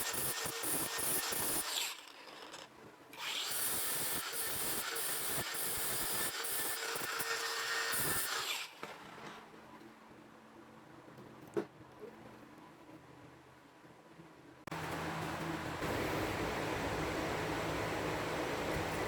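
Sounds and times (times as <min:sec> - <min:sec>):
power tool rasping hiss: 0:00.0 - 0:02.6, 0:03.2 - 0:08.8.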